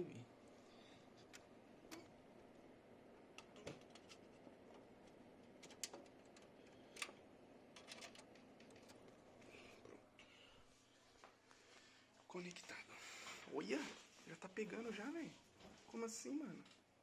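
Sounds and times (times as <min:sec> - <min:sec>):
cable clicks and knocks: 0:03.3 - 0:09.1.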